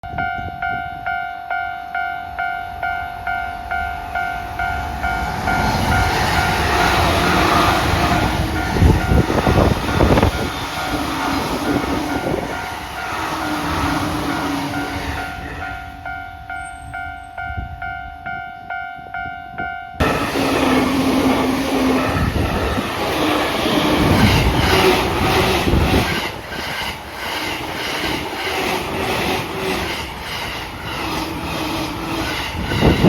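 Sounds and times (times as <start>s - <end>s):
level crossing warning bell: 0.0s - 25.0s
train rushing past: 2.0s - 17.9s, 20.0s - 33.0s.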